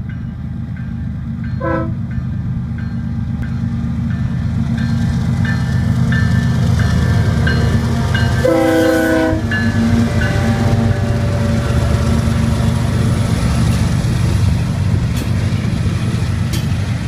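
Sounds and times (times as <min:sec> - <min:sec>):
diesel locomotives rumbling: 0:00.0 - 0:17.0
train air horn blast: 0:01.6 - 0:02.0, 0:07.1 - 0:12.6.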